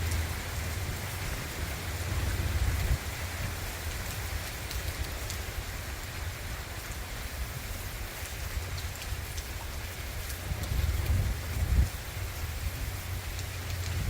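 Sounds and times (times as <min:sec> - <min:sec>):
heavy rain falling: 0:00.0 - 0:14.0
water drips ticking: 0:00.0 - 0:14.0
wind rumble on microphone: 0:00.0 - 0:14.0.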